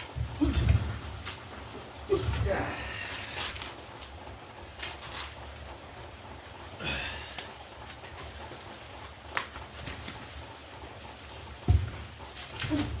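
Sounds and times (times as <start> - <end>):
steady low background hum: 0.0 - 13.0.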